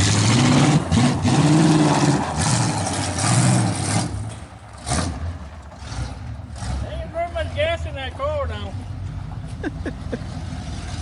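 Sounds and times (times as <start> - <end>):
race car engine revving: 0.0 - 7.8.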